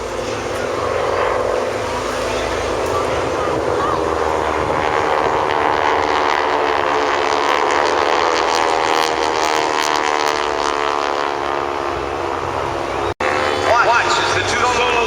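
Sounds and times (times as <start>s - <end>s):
propeller aircraft drone: 0.0s - 15.0s.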